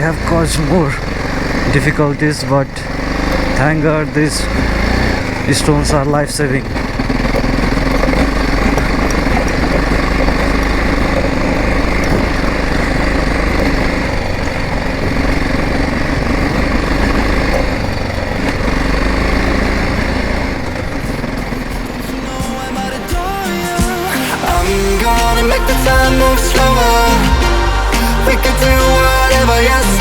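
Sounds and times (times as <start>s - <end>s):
motorcycle engine rumbling: 0.0s - 30.0s.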